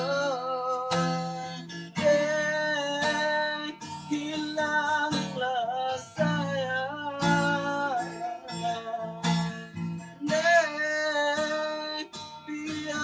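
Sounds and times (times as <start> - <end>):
person singing: 0.0 - 13.0
strummed guitar: 0.0 - 13.0.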